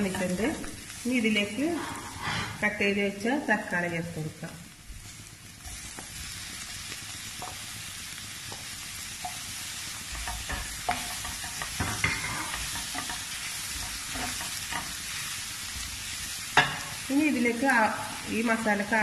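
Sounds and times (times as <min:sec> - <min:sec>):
onions and tomatoes sizzling: 0:00.0 - 0:19.0
wooden spatula scraping a pan: 0:01.5 - 0:02.8, 0:08.4 - 0:15.8.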